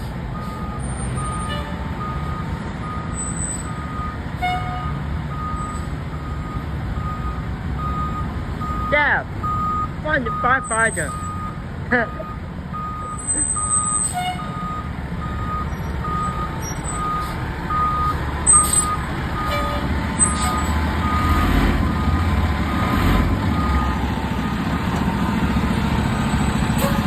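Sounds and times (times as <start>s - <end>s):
truck engine running: 0.0s - 27.0s
reverse alarm beeping: 5.3s - 19.5s.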